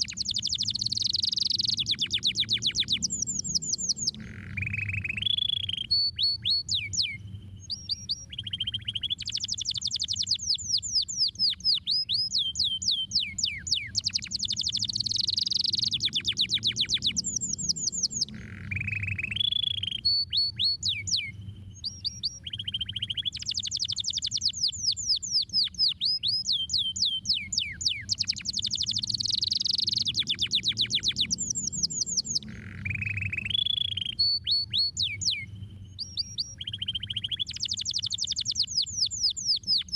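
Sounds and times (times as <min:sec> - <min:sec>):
canary singing: 0:00.0 - 0:39.9
faint low hum: 0:00.0 - 0:39.9.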